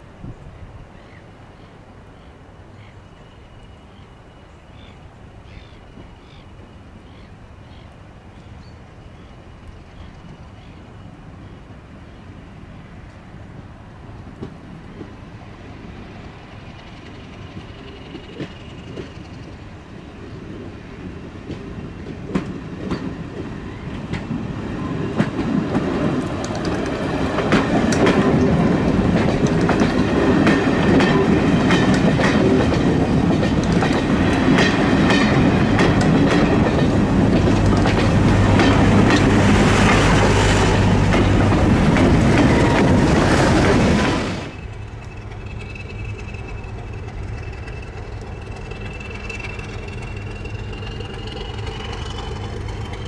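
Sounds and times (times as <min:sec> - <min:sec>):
diesel train passing: 0:00.0 - 0:53.0
wheels clicking over rail joints: 0:20.5 - 0:53.0.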